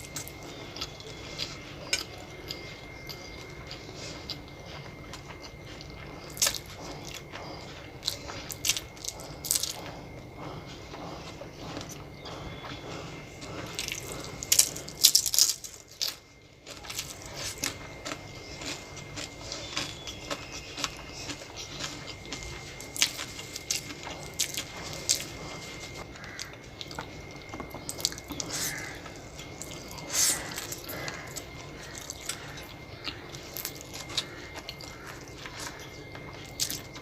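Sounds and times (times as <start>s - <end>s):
person chewing food: 0.0s - 37.0s
crisp crunches: 13.7s - 37.0s.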